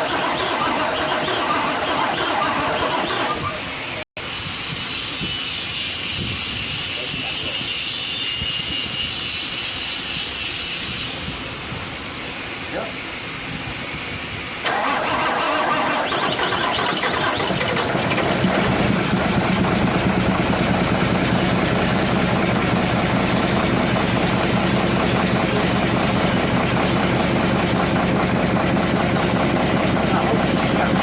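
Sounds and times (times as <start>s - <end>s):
diesel engine idling: 0.0s - 4.0s, 14.6s - 31.0s
diesel engine starter cranking: 0.0s - 4.0s, 14.6s - 31.0s.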